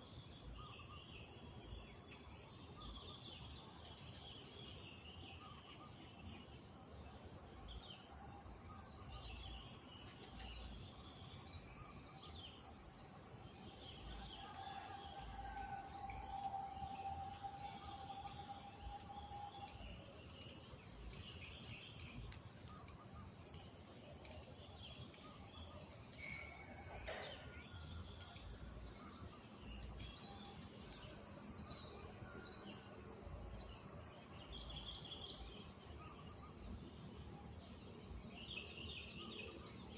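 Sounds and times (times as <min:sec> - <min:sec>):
high insect drone: 0:08.7 - 0:39.9.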